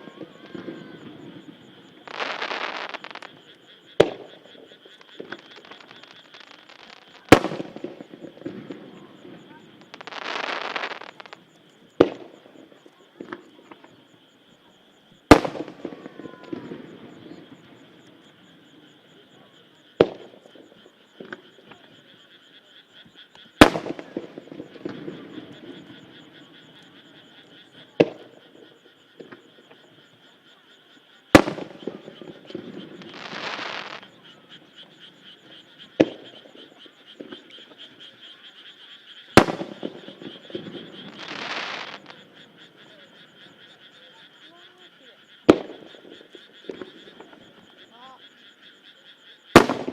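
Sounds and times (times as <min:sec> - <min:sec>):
frogs croaking: 0:00.0 - 0:49.9
firework shells bursting: 0:02.0 - 0:03.4, 0:04.0 - 0:08.9, 0:09.8 - 0:11.4, 0:15.3 - 0:17.3, 0:23.6 - 0:25.6, 0:31.3 - 0:34.1, 0:39.4 - 0:42.3, 0:49.6 - 0:49.9.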